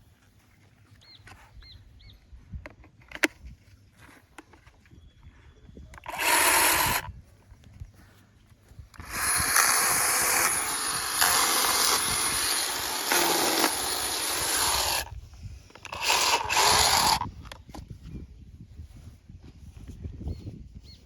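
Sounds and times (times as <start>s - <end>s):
battery chainsaw running: 6.0s - 7.1s, 9.0s - 15.1s, 15.8s - 17.3s.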